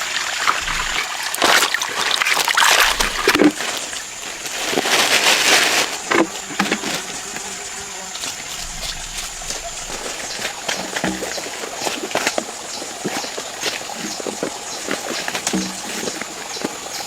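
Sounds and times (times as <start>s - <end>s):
muddy water splashing: 0.0s - 17.0s.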